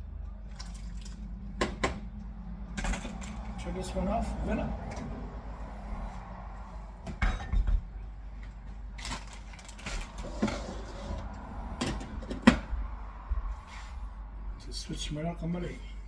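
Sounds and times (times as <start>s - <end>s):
pots and utensils clattering: 7.1s - 7.8s, 9.0s - 11.2s.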